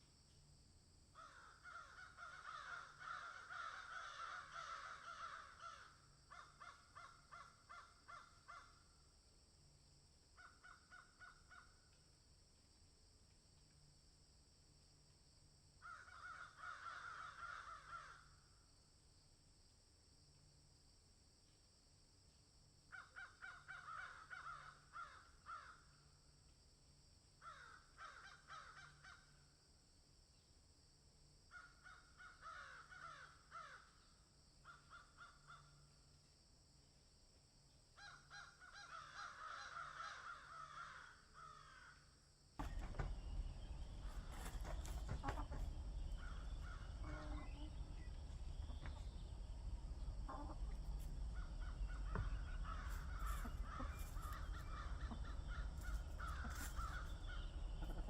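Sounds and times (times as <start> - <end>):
harsh bird calls: 1.2 - 8.6, 42.6 - 58.0
low rumbling noise: 42.6 - 58.0.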